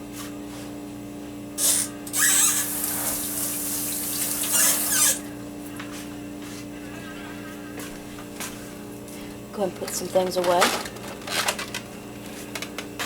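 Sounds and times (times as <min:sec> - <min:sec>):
tap water running into sink: 0:02.2 - 0:05.2.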